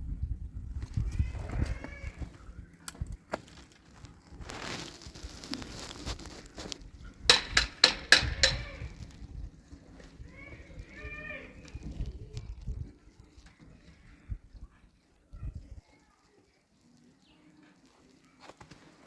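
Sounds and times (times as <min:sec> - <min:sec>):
rustling crunching noise: 0:00.6 - 0:19.0
sharp knocks: 0:07.3 - 0:09.0.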